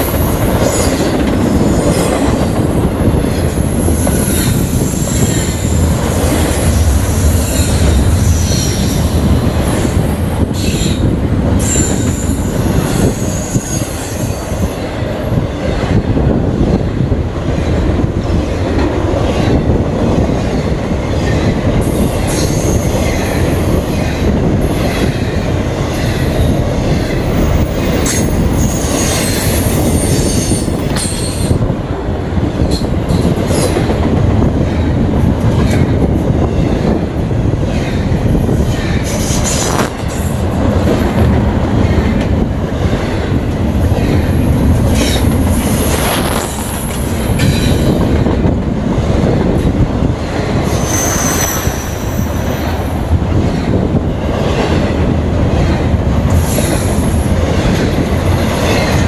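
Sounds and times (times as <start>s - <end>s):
train wheels rumbling on rail: 0.0s - 59.0s
high wheel squeal: 10.6s - 14.6s, 50.7s - 52.4s.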